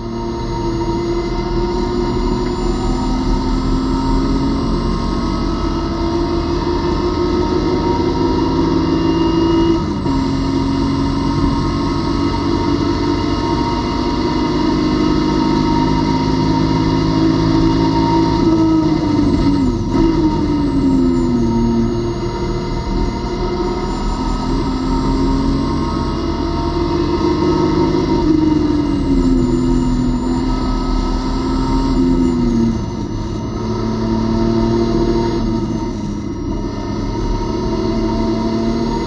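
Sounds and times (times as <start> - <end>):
race car engine at speed: 0.0 - 39.0.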